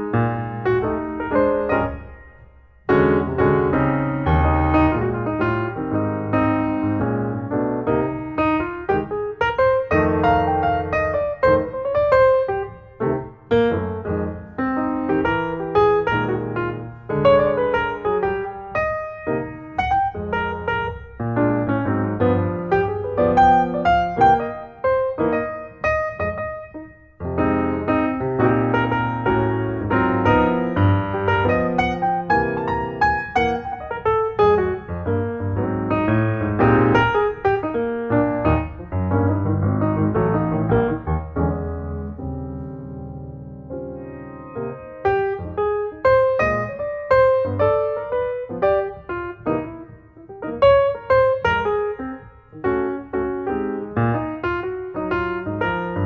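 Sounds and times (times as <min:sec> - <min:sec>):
solo piano music: 0:00.0 - 0:56.0.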